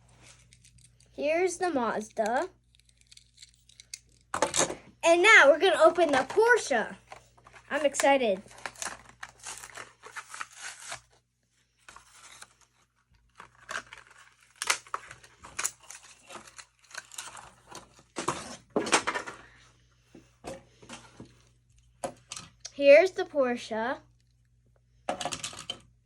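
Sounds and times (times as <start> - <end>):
plastic crinkling: 5.8 - 18.2
cardboard tearing: 8.6 - 11.2.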